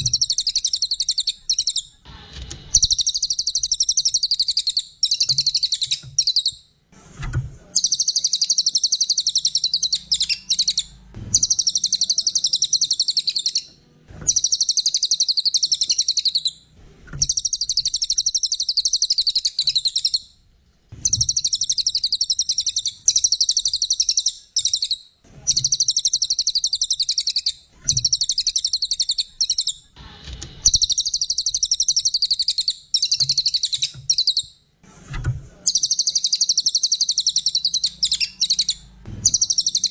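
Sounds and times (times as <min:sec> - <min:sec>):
songbird singing high trills: 0:00.0 - 0:01.9, 0:07.8 - 0:13.7, 0:14.3 - 0:16.6, 0:17.2 - 0:20.3, 0:35.7 - 0:39.9.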